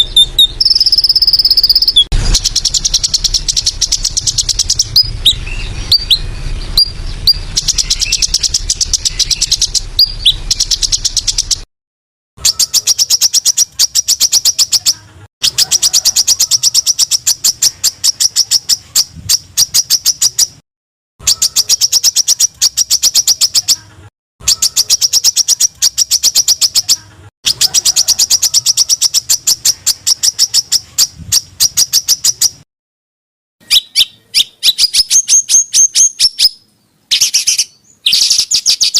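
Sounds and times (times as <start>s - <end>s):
low background hum: 0.0s - 11.6s
songbird chirps: 0.0s - 11.7s, 12.4s - 20.6s, 21.2s - 32.6s, 33.6s - 38.9s.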